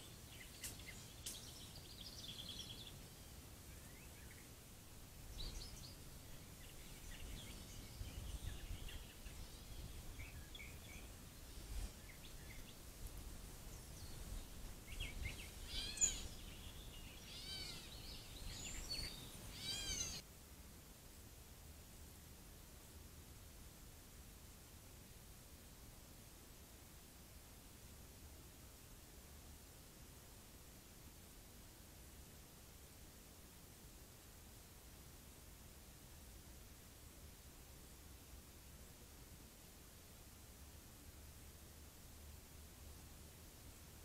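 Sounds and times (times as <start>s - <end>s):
wild birds calling and singing: 0.0s - 4.6s, 5.3s - 12.8s, 13.7s - 20.2s.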